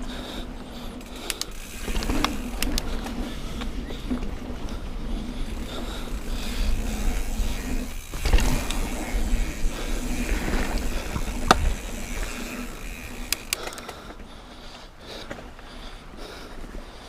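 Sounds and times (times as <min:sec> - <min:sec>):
bike rattle: 0:00.0 - 0:16.3
wind and trail rumble: 0:00.0 - 0:17.0
light clicks: 0:01.0 - 0:03.7, 0:13.2 - 0:14.2.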